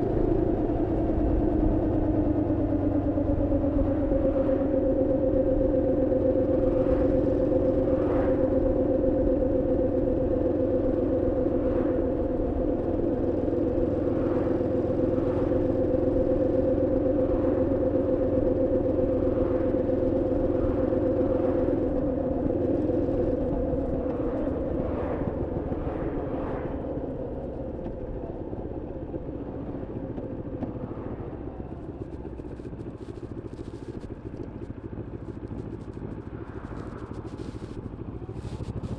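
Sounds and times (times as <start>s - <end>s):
motorcycle engine cruising: 0.0s - 38.9s
road and wind rumble: 0.0s - 38.9s.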